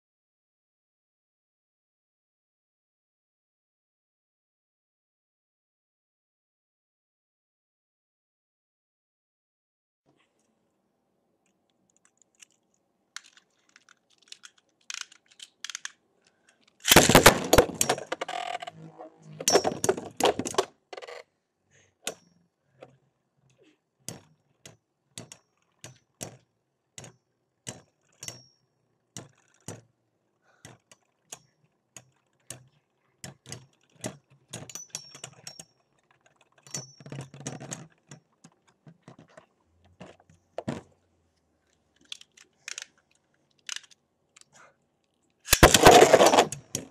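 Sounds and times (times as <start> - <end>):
rattling collisions: 16.9 - 20.7.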